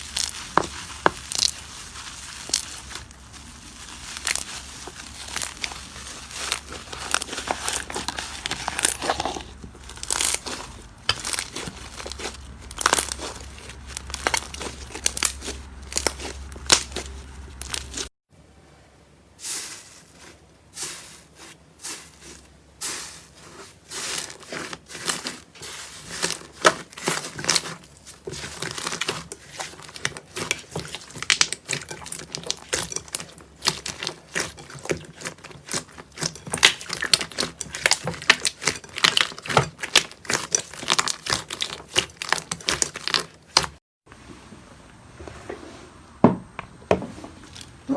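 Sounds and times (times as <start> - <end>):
slime crackling and popping: 0.0 - 18.1, 24.0 - 43.7.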